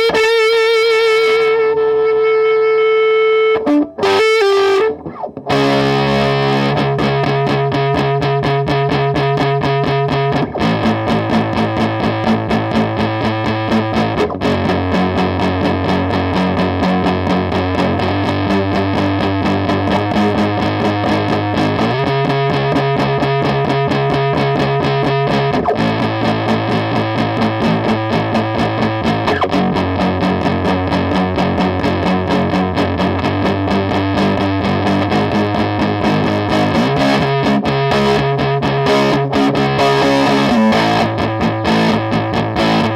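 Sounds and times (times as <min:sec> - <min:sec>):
distorted electric guitar chords: 0:00.0 - 0:42.9.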